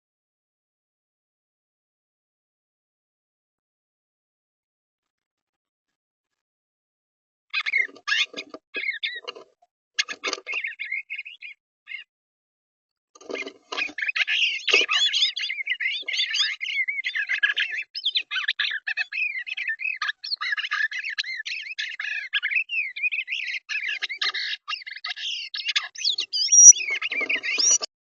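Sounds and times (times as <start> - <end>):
songbirds chirping and singing: 7.6 - 12.1, 13.2 - 27.9.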